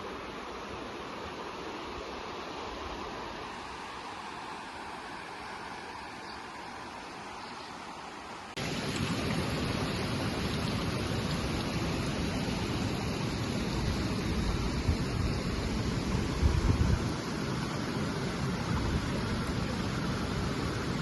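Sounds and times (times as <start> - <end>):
waterfall rushing water: 0.0 - 21.0.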